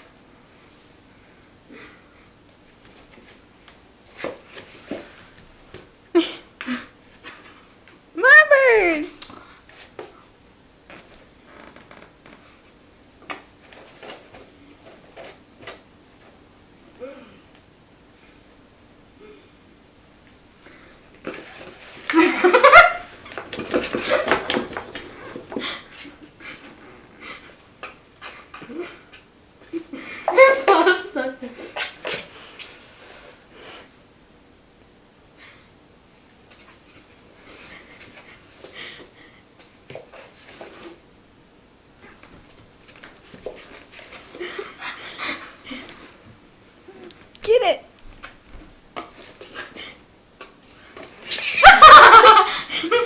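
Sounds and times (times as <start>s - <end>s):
knocks and scuffling: 21.2s - 26.8s.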